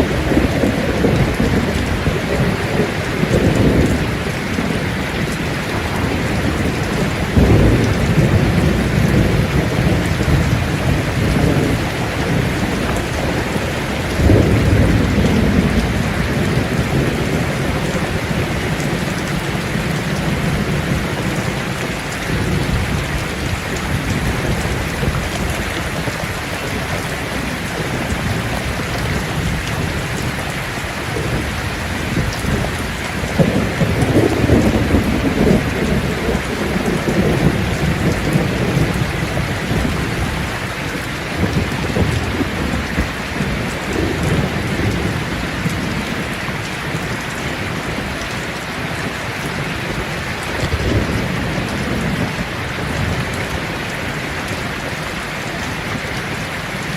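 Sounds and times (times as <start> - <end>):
thunder rumbling: 0.0 - 55.0
heavy rainfall: 0.0 - 56.9.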